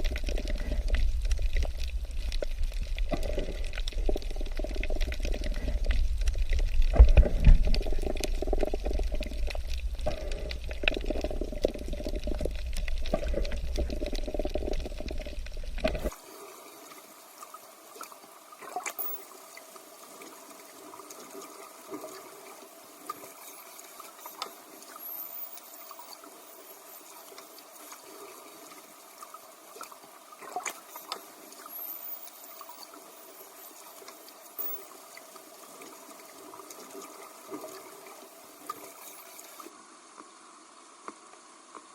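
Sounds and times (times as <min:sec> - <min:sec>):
underwater breathing bubbles: 0:03.0 - 0:06.3, 0:06.9 - 0:17.0
underwater clicks: 0:18.0 - 0:19.1, 0:29.8 - 0:31.8.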